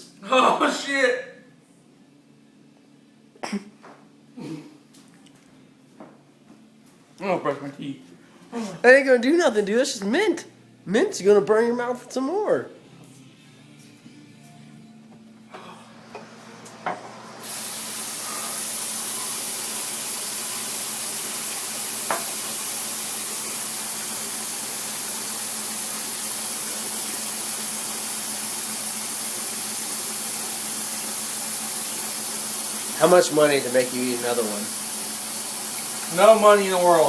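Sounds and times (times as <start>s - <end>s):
sink tap water running: 16.0s - 37.0s.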